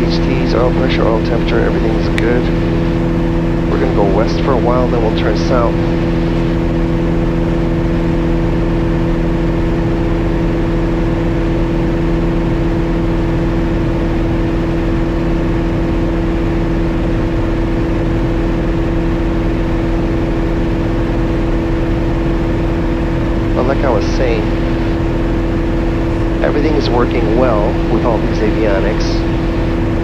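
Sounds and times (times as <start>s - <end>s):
aircraft engine and propeller droning: 0.0s - 30.0s.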